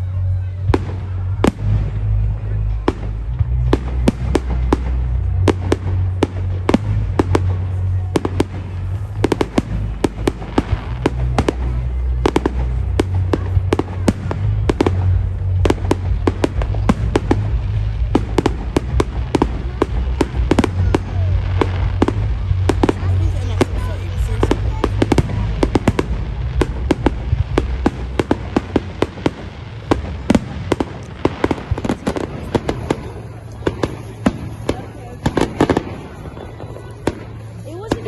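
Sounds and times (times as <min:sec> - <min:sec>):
music with heavy bass: 0:00.0 - 0:36.0
fireworks bangs and crackles: 0:00.0 - 0:38.0.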